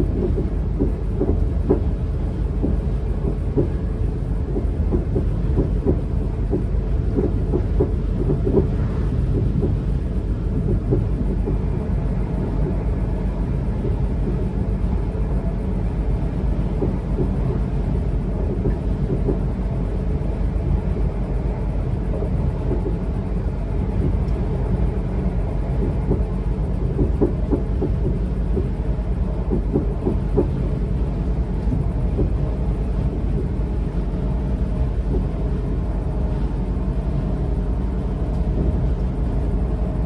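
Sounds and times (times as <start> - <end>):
train wheels rumbling on rail: 0.0 - 40.0
knocks and rattles: 26.9 - 28.7, 29.5 - 30.6.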